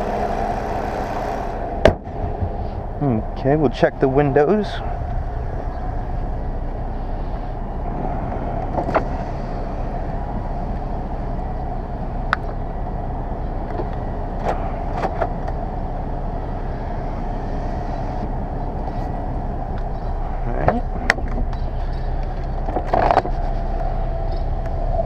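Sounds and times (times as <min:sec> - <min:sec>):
electric power windows running: 0:00.0 - 0:01.7
car engine idling: 0:00.0 - 0:25.0.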